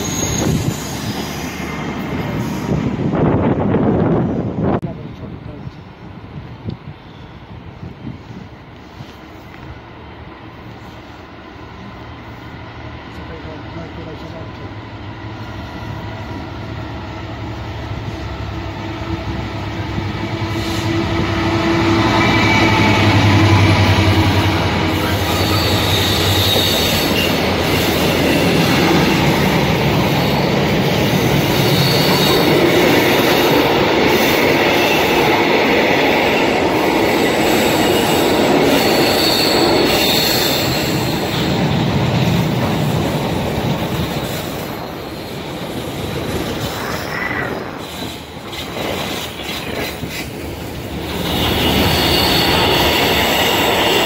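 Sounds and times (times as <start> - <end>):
high wheel squeal: 0.0 - 1.5, 22.0 - 29.1, 30.0 - 32.7, 37.2 - 41.6, 51.1 - 54.0.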